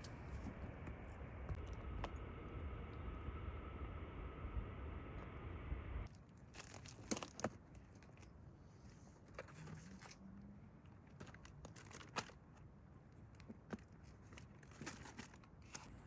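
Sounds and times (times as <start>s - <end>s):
crinkling: 6.0s - 16.0s.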